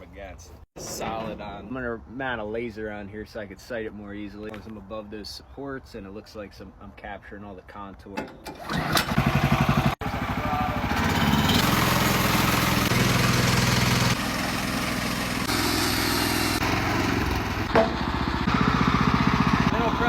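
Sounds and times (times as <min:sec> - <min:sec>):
gas engine running: 0:08.6 - 0:20.0
band saw cutting log: 0:10.7 - 0:20.0.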